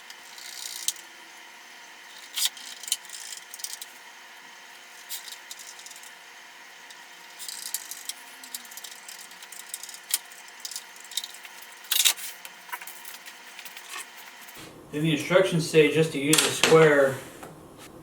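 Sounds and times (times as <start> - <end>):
metal hardware clicking and rattling: 7.4 - 14.0.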